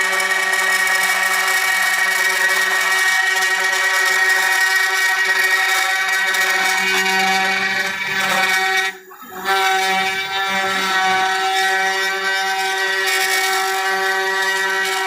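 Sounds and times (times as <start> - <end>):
router spindle whine: 0.0 - 15.0.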